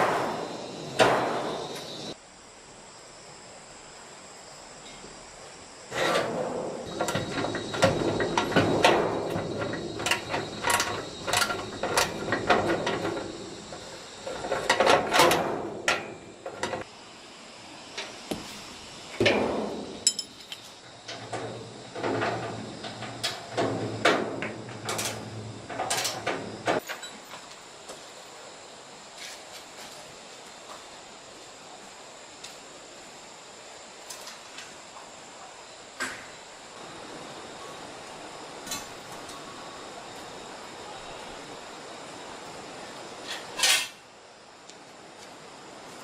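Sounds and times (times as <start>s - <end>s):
metal clanks and knocks: 0.0s - 2.1s, 6.0s - 16.9s, 19.2s - 27.4s.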